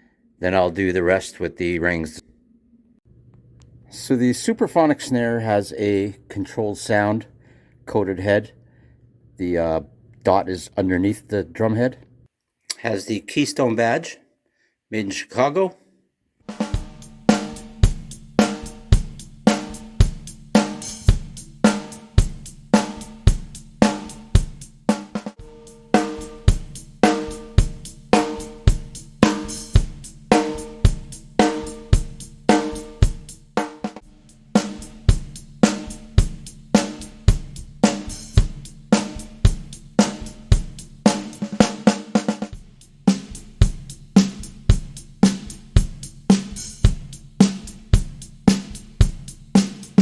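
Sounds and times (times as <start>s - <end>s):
snare drum hits with wire buzz: 16.5s - 50.0s.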